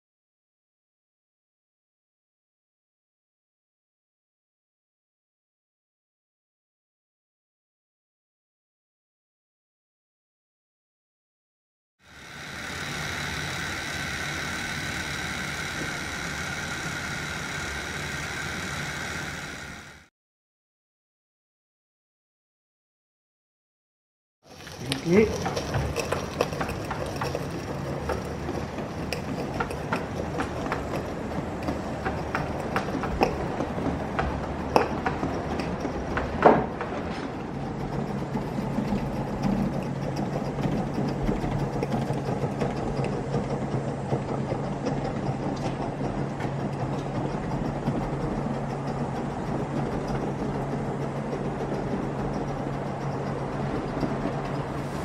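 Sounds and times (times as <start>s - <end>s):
model locomotive clattering: 12.1s - 20.1s, 24.5s - 55.0s
steady low hum: 12.1s - 20.1s, 24.5s - 55.0s.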